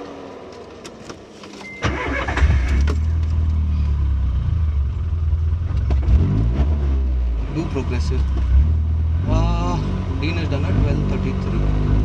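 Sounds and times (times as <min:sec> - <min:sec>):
car engine starting and idling: 0:00.0 - 0:12.0
short beep: 0:01.6 - 0:02.1.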